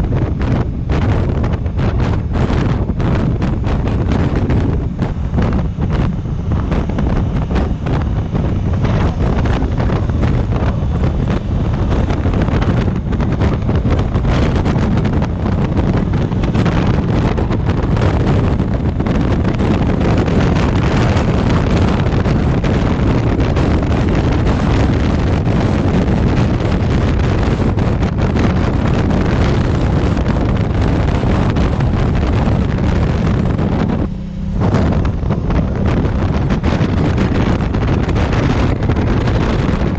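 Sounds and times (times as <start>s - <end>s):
motorcycle running: 0.0s - 39.9s
road noise: 0.0s - 39.9s
wind buffeting microphone: 0.0s - 39.9s.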